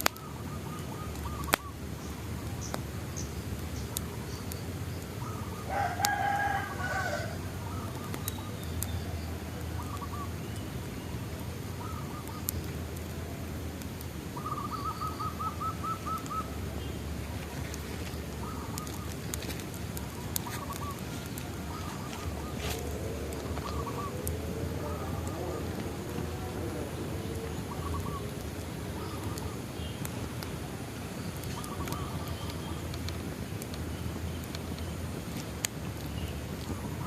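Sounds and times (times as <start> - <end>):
birds calling and chirping: 0.0 - 37.0
bonfire crackling and popping: 0.0 - 37.0
low rumble: 15.3 - 31.0.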